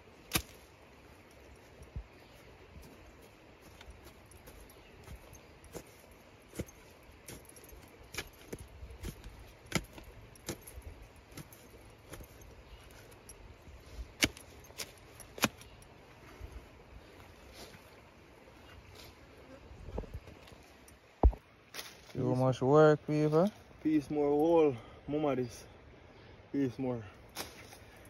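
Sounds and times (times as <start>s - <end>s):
digging tool striking stony soil: 0.2s - 0.8s, 3.6s - 13.3s, 14.0s - 15.8s, 27.3s - 27.9s.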